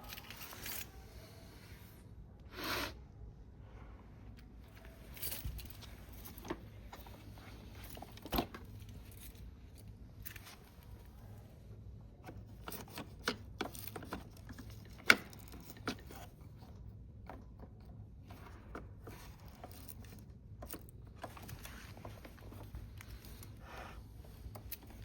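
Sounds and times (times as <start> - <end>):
handling clicks and knocks: 12.2 - 23.6, 24.2 - 25.0.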